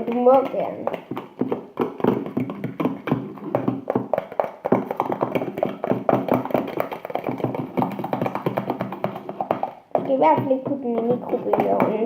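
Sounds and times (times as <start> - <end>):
spoon stirring slime in bowl: 0.0 - 12.0.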